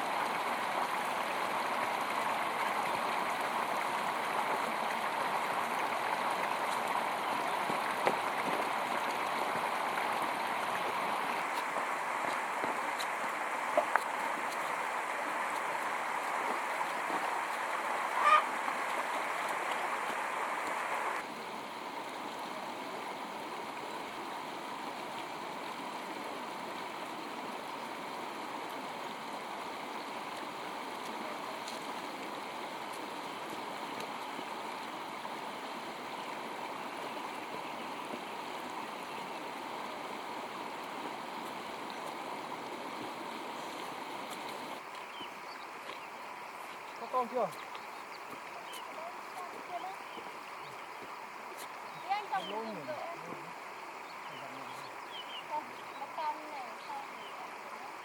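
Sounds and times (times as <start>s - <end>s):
steady rushing outdoor noise: 0.0s - 57.0s
fowl honking call: 18.1s - 18.6s.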